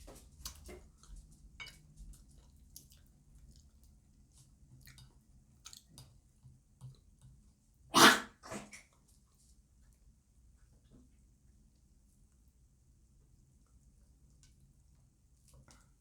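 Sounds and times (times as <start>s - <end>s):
dog barking: 8.0s - 8.4s.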